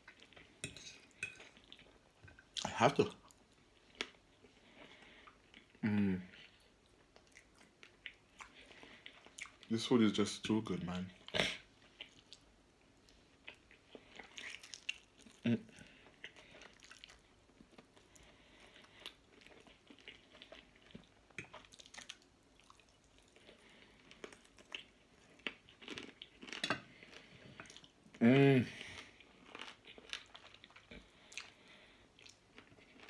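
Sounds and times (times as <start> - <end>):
chewing and mouth smacks: 6.8 - 9.7, 11.8 - 15.5, 16.1 - 28.0, 29.0 - 31.6, 32.2 - 33.0.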